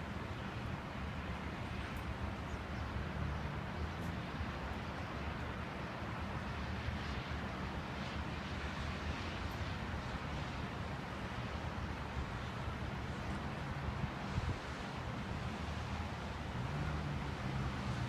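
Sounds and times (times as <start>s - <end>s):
wind rumble on microphone: 11.3s - 18.0s.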